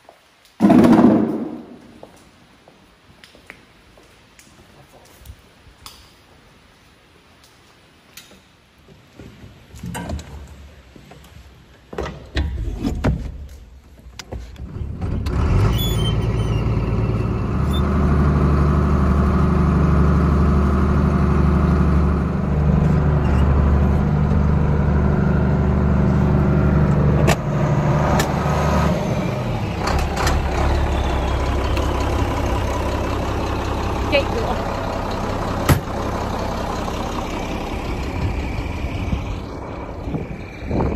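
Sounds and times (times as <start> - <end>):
tractor engine running: 14.6 - 40.9.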